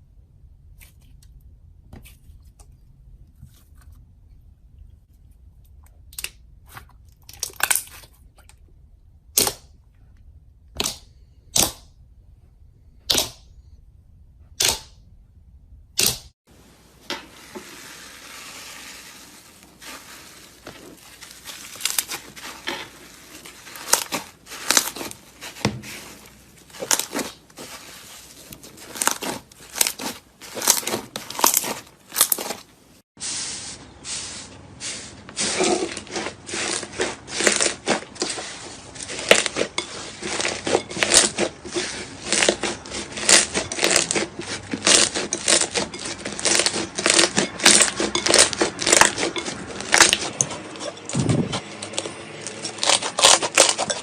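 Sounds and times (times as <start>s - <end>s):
slime crackling and crunching: 17.8s - 32.7s, 34.9s - 50.7s, 51.5s - 54.0s.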